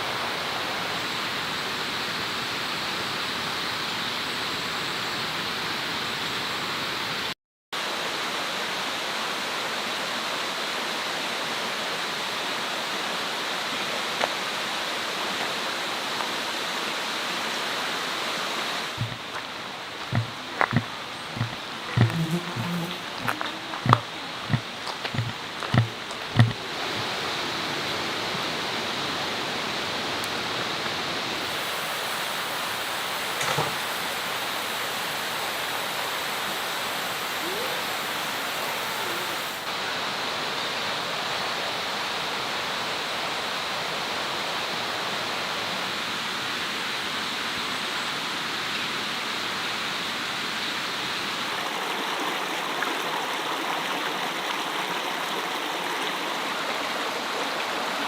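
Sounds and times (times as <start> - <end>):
running water rushing: 7.8 - 40.7, 50.8 - 58.0
faint knock: 19.0 - 19.2, 20.1 - 26.6.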